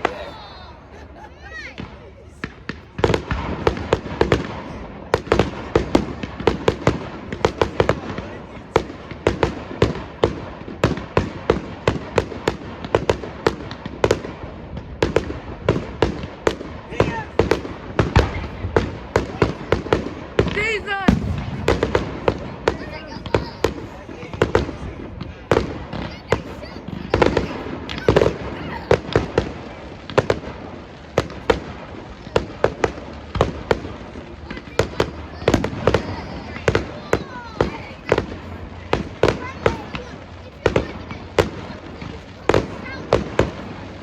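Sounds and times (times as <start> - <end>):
fireworks bangs: 0.0 - 44.0
fireworks crackling: 0.0 - 44.0.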